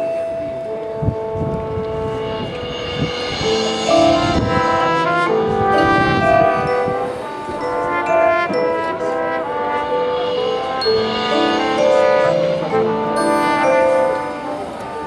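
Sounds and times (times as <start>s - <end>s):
brass chords and melodies: 0.0s - 15.0s
marching drums: 1.6s - 9.0s.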